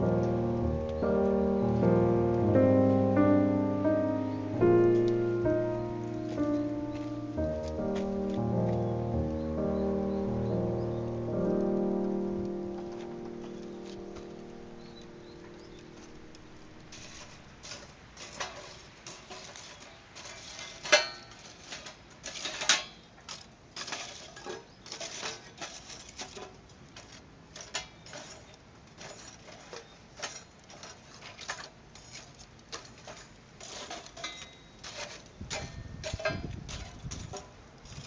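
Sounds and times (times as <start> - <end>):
utensils and dishes clinking: 15.0 - 23.0, 23.8 - 38.0.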